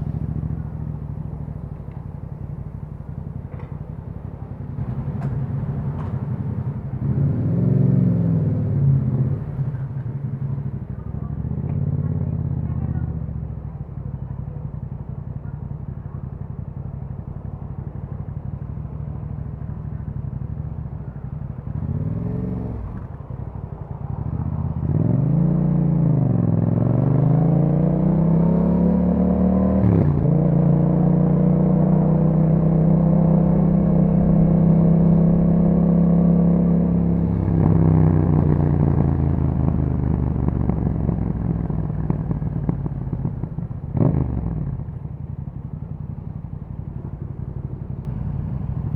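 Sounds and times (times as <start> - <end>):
motorcycle engine revving: 19.9 - 48.9.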